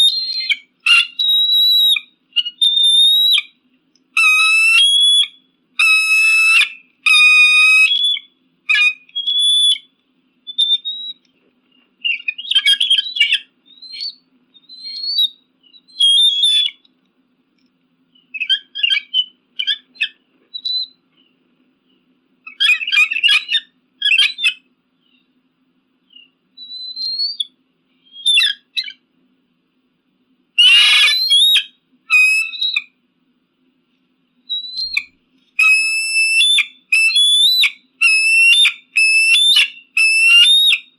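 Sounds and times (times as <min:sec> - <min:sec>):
eagle yelping and chattering: 0:00.0 - 0:03.5, 0:04.2 - 0:09.8, 0:12.1 - 0:14.2, 0:18.4 - 0:20.8, 0:22.5 - 0:24.6, 0:28.2 - 0:29.0, 0:30.6 - 0:32.9, 0:34.6 - 0:40.9.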